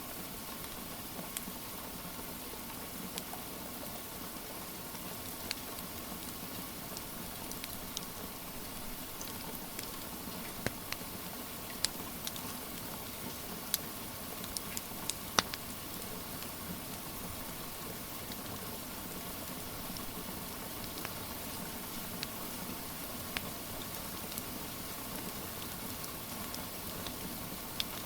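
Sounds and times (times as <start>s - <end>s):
steady rain hiss: 0.0s - 28.0s
wood fire crackling: 4.9s - 28.0s.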